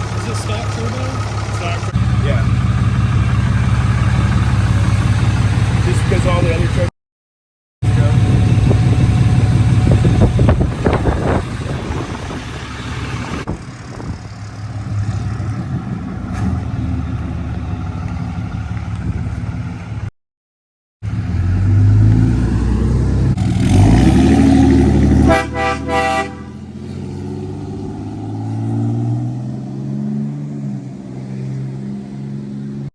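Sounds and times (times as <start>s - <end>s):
car engine revving: 0.0s - 6.9s, 7.8s - 18.6s, 21.0s - 32.9s
car horn toots: 25.2s - 26.6s.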